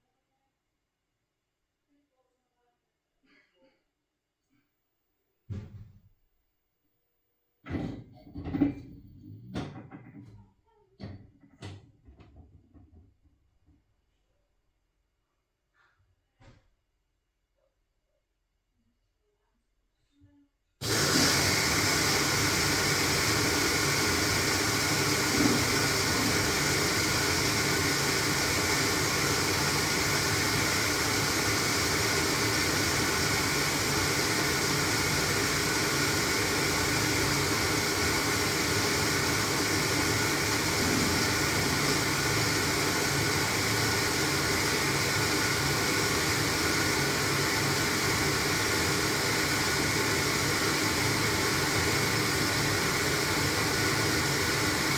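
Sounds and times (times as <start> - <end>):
washing machine running: 20.8 - 54.9.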